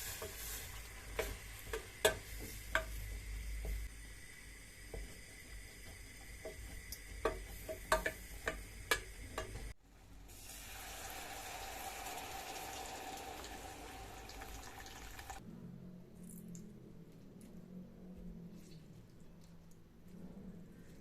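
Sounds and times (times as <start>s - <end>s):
water running from a tap: 10.3s - 15.4s.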